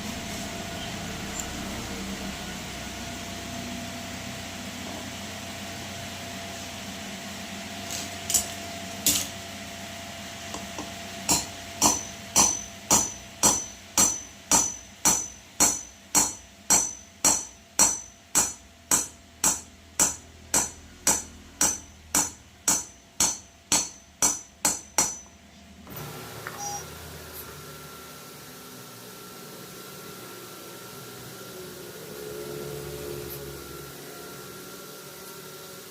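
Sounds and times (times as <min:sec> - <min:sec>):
hammer striking metal: 0:08.3 - 0:09.4, 0:10.6 - 0:25.4.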